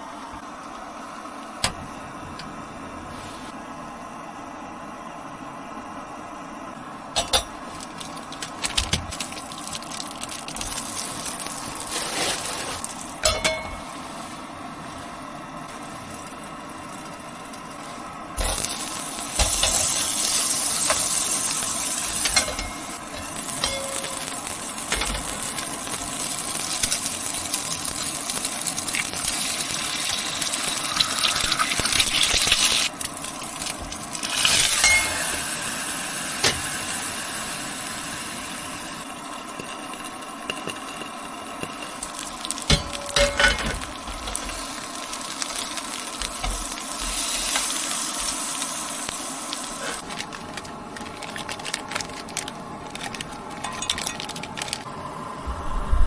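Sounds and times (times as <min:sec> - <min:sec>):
dishes and utensils clinking: 0:07.2 - 0:07.6, 0:12.2 - 0:14.0, 0:22.2 - 0:25.5, 0:34.7 - 0:35.4, 0:42.6 - 0:44.5.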